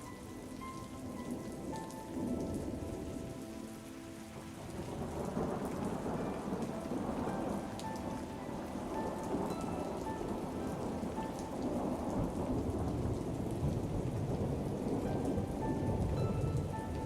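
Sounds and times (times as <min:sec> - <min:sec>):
faint slow music: 0:00.0 - 0:17.0
steady rain: 0:00.0 - 0:17.0
thunder rumbling: 0:04.6 - 0:17.0.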